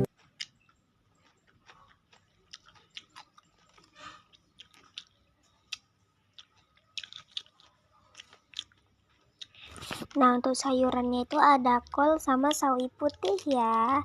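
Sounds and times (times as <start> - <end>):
chewing food: 0.0 - 14.0
crisp crunches: 1.2 - 10.2.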